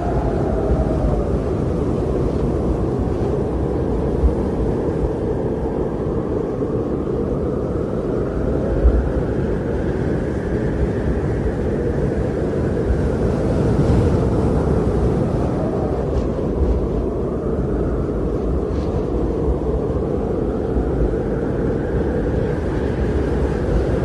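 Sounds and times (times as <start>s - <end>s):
blizzard wind howling: 0.0s - 24.0s
gusts buffeting thumps: 13.9s - 20.2s.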